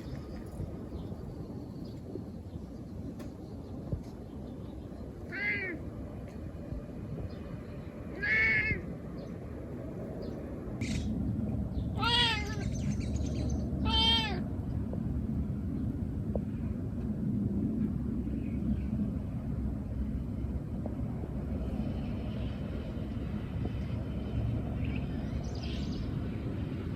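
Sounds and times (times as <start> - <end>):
low rumble: 0.0 - 26.9
cat meowing: 5.3 - 5.8, 8.1 - 8.9, 11.9 - 12.8, 13.8 - 14.5.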